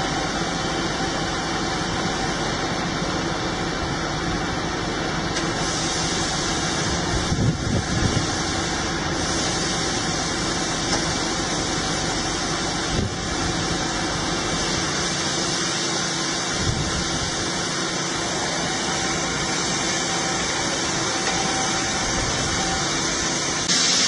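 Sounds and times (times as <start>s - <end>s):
milling machine running: 0.0s - 24.0s.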